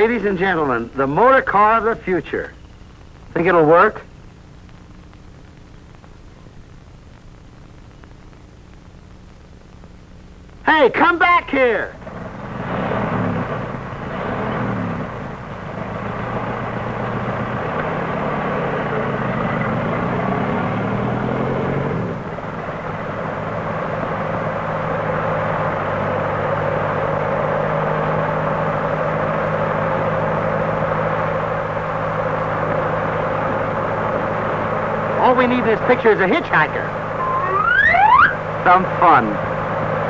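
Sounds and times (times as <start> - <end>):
old car engine running: 12.0 - 37.2, 38.4 - 40.0.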